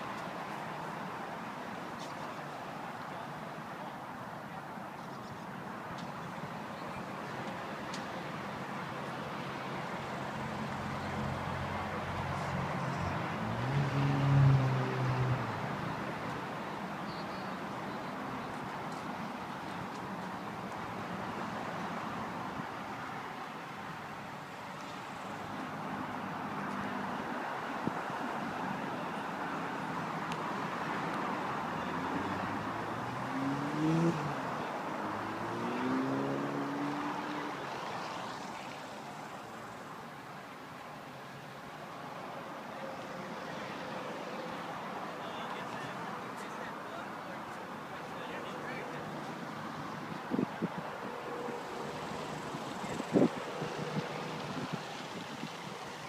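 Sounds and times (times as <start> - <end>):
outdoor traffic noise: 0.0 - 56.0
car engine approaching: 10.2 - 16.2, 31.5 - 39.7.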